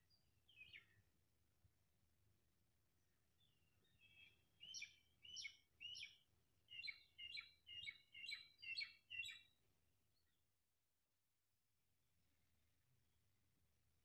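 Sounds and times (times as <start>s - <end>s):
small bird chirping: 3.8s - 9.5s.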